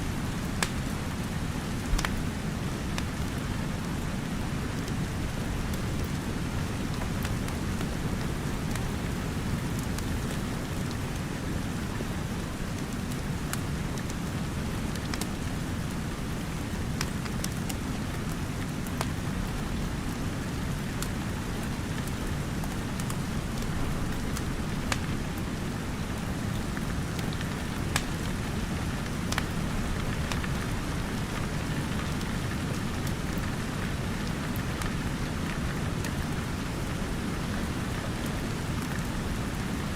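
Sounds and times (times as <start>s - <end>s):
steady rain: 0.0s - 39.9s
wood fire crackling and popping: 0.4s - 11.4s, 14.9s - 15.4s, 16.6s - 39.6s.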